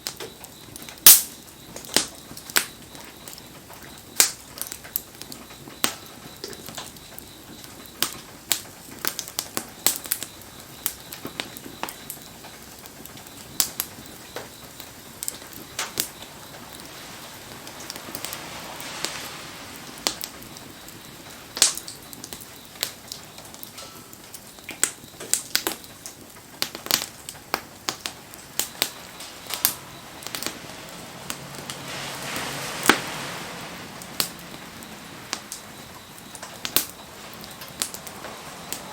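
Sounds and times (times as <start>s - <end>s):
bonfire crackling and popping: 0.0s - 38.9s
soft hiss of fire: 0.0s - 38.9s.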